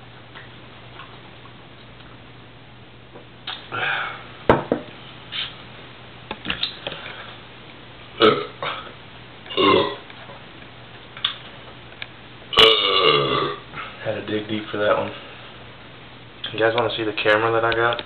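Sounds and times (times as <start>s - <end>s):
man burping: 8.2s - 8.9s, 9.5s - 10.0s, 12.5s - 13.6s.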